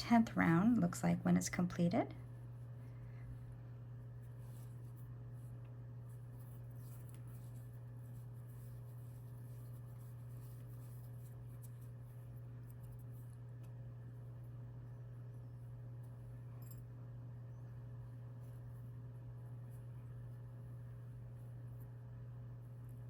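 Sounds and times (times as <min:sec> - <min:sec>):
low electrical hum: 0:00.0 - 0:23.0
crochet hook scratching yarn: 0:04.2 - 0:13.7.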